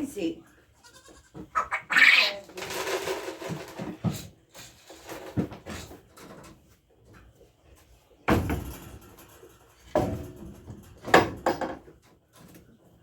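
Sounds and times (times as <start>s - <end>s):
clattering knocks: 8.2s - 12.0s.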